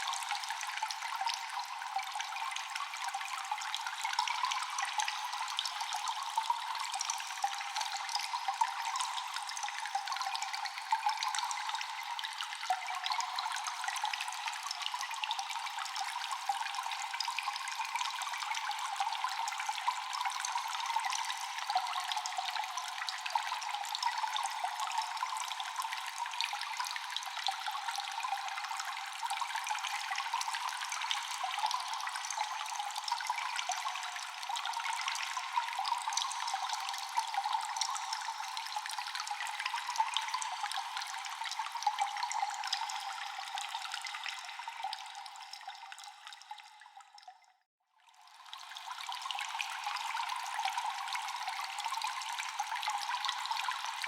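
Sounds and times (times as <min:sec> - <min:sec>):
trickling water: 0:00.0 - 0:54.0
water dripping in a cave: 0:00.0 - 0:54.0.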